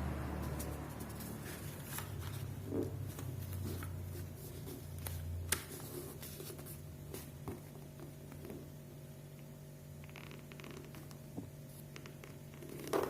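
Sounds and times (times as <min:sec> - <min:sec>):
steady low hum: 0:00.0 - 0:12.6
paper rustling and creasing: 0:00.5 - 0:08.6.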